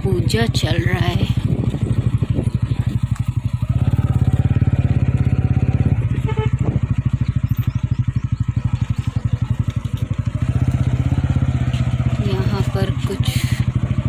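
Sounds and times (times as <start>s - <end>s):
motorcycle engine running: 0.0s - 14.0s
vehicle horn beeping: 6.1s - 6.9s.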